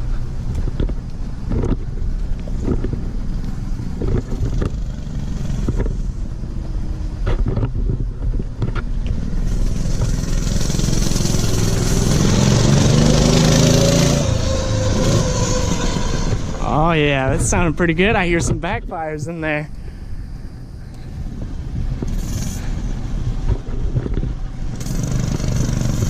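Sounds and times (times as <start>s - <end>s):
engine backfire pops: 4.0s - 6.0s, 23.4s - 26.0s
minibike engine passing by: 9.1s - 17.1s, 24.3s - 26.0s.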